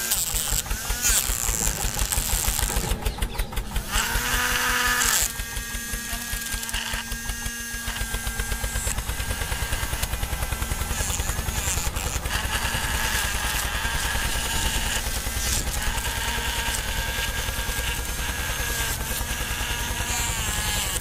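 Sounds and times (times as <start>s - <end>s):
small electric motors whining: 0.0s - 21.0s.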